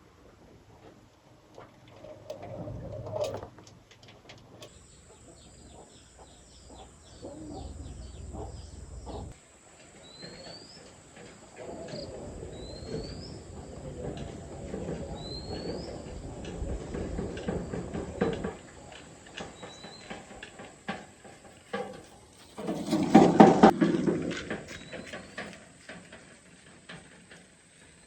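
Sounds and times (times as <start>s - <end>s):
low wavering bird calls: 4.7s - 9.4s, 10.0s - 18.3s.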